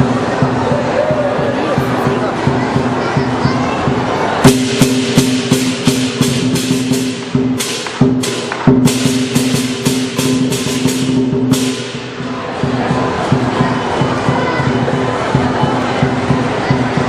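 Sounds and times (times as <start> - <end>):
drum beating: 0.0 - 17.0
clashing cymbals: 1.7 - 17.0.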